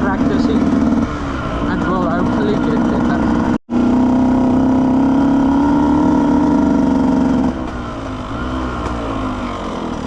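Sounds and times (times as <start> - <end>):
dirt bike engine: 0.0 - 10.0.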